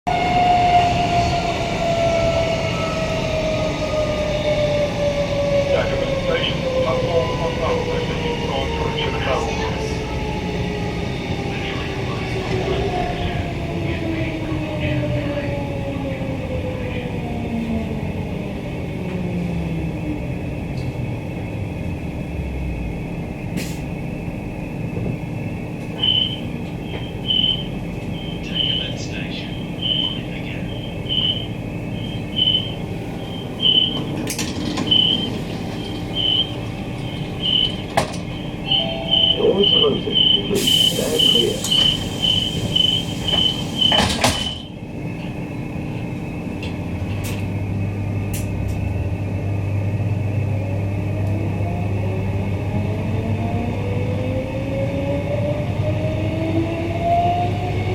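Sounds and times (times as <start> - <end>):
electric train rumbling: 0.1 - 57.9
train doors shutting: 23.2 - 49.2
train door warning beeps: 25.8 - 44.8
high-pitched squeals: 26.0 - 34.2, 34.8 - 44.7
rising electric whines: 26.0 - 44.7
air hiss: 40.6 - 44.3.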